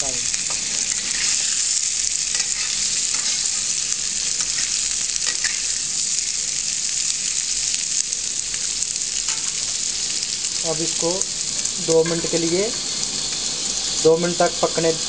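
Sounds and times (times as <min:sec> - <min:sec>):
potatoes sizzling in oil: 0:00.0 - 0:15.0
spatula scraping pan: 0:00.4 - 0:03.7.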